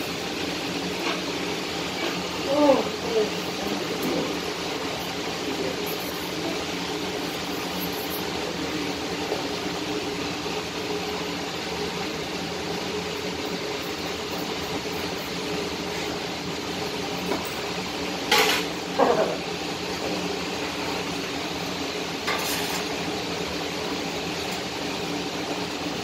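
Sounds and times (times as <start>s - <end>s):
gas welding torch hissing: 0.0s - 25.8s.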